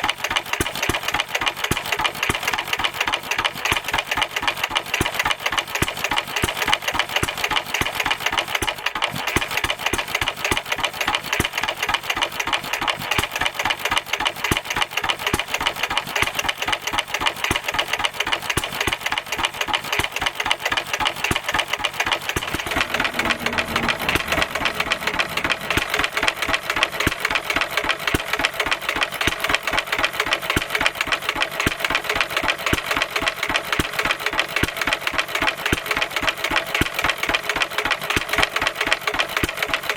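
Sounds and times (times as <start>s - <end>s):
stationary engine running: 21.3s - 29.8s.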